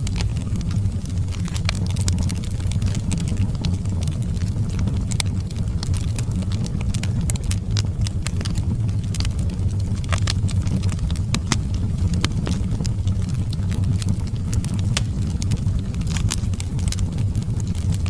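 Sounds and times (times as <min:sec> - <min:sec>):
fire crackling and popping: 0:00.0 - 0:18.0
fire flame rumble: 0:00.0 - 0:18.0.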